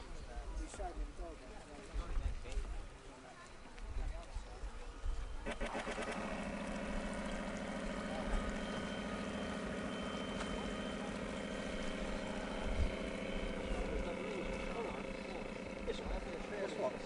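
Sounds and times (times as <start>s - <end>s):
model boat engine running: 5.3s - 17.0s.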